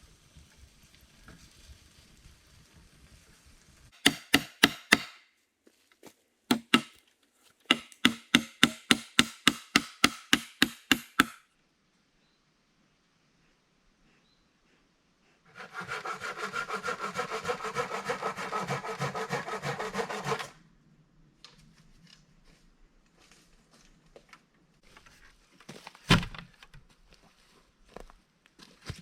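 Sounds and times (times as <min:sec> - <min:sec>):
hand saw cutting wood: 0:04.0 - 0:05.2, 0:06.5 - 0:07.0, 0:07.7 - 0:11.4, 0:15.5 - 0:20.6.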